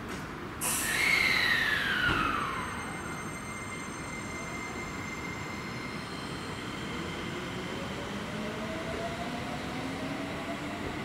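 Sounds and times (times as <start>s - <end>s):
falling train whine: 0.6s - 11.0s
electric train running: 0.9s - 9.5s.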